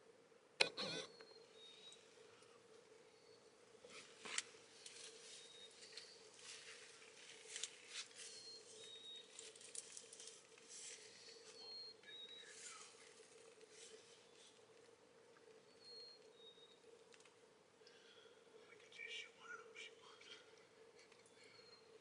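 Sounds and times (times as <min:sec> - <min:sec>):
steady low hum: 0:00.0 - 0:22.0
rustling and scratching: 0:03.8 - 0:14.9.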